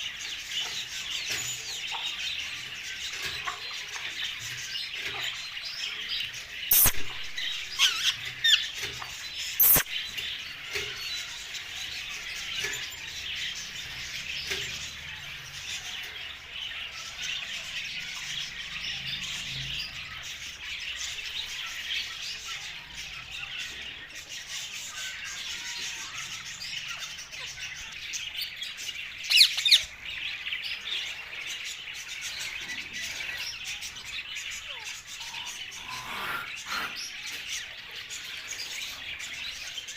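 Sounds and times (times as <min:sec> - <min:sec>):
parrots chirping and calling: 0:00.0 - 0:39.9
loud parrot squawks: 0:06.7 - 0:08.7, 0:09.6 - 0:09.9, 0:35.2 - 0:37.2.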